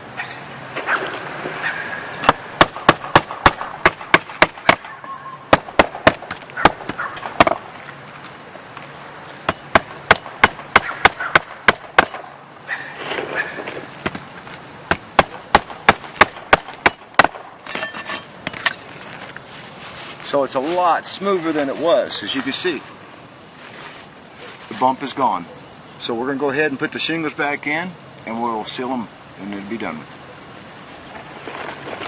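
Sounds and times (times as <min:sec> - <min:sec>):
hammer striking roofing nails: 0:02.2 - 0:04.9, 0:05.5 - 0:07.6, 0:09.5 - 0:12.3, 0:14.9 - 0:17.4.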